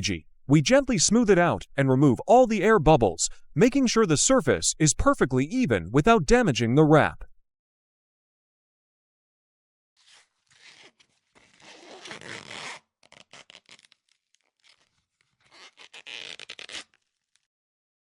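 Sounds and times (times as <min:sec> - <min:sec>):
squeegee scraping vinyl: 0:10.0 - 0:17.5.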